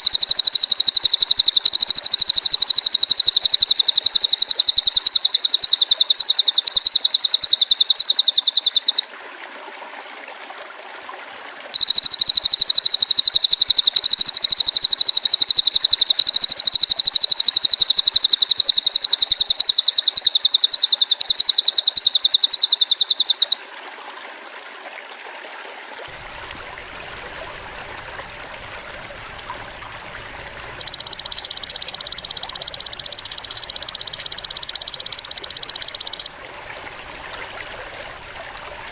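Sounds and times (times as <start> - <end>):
high rapid pulsing trill: 0.0 - 9.0, 11.8 - 23.5, 30.3 - 36.4
lower buzzing trill: 29.0 - 36.4.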